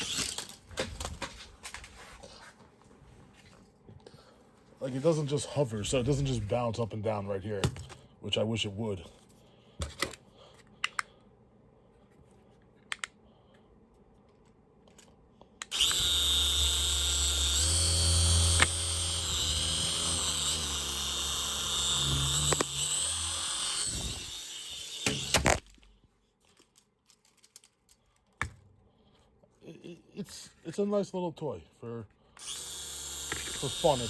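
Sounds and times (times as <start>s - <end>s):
toy helicopter motor whirring: 15.7s - 25.6s, 32.4s - 34.0s.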